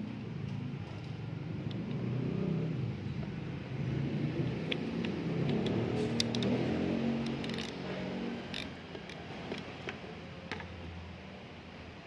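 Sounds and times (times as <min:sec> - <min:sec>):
vehicle engine humming: 0:00.0 - 0:11.5
wrench metallic clicks: 0:04.6 - 0:06.6, 0:07.2 - 0:07.8, 0:08.5 - 0:10.7.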